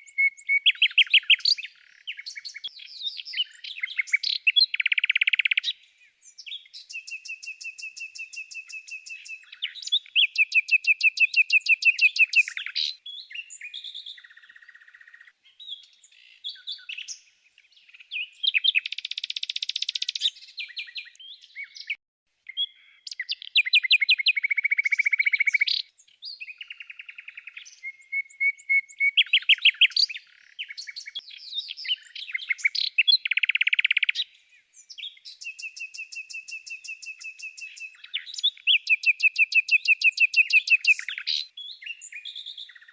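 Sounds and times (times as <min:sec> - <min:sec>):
songbird chirps and trills: 0:00.0 - 0:42.9.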